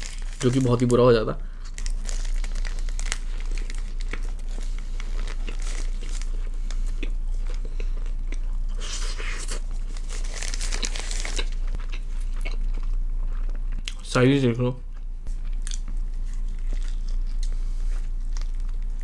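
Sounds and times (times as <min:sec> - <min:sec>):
paper wrapper crinkling: 0:00.0 - 0:06.4, 0:08.9 - 0:11.8
steady low hum: 0:00.0 - 0:19.0
chewing and biting food: 0:01.8 - 0:14.0, 0:15.4 - 0:19.0.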